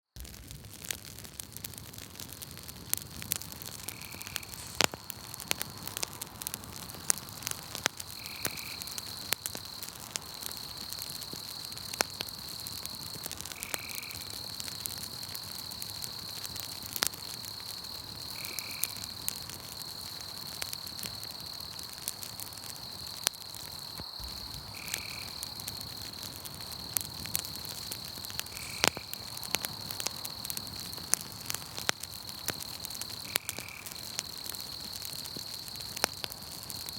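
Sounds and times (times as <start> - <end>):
campfire crackling and popping: 0.1 - 36.9
high-pitched insect trill: 3.8 - 5.8, 22.8 - 31.0.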